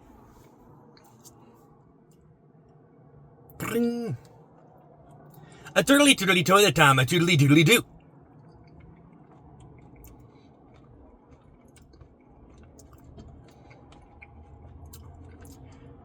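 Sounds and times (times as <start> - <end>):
wet chewing mouth sounds: 8.7 - 16.0.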